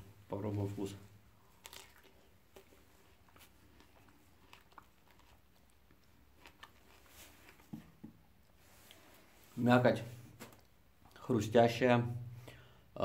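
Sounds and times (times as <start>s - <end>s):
crunching and chewing fruit: 0.6s - 9.1s.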